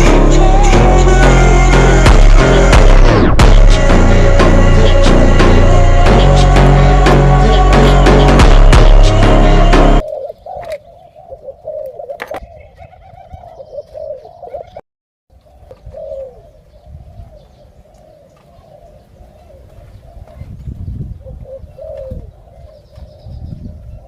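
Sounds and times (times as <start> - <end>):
doves cooing: 10.0 - 14.8, 15.4 - 20.6, 21.2 - 24.0.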